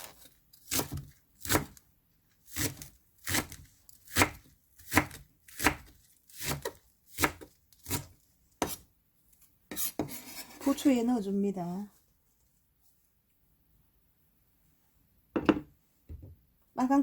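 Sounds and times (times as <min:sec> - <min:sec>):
knife chopping green onions: 0:00.6 - 0:01.8, 0:02.5 - 0:08.8.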